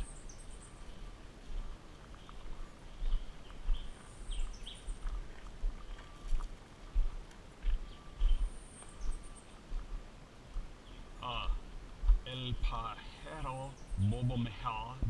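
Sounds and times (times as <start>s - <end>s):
birds chirping: 0.0s - 15.0s
low uneven rumble: 9.5s - 15.0s.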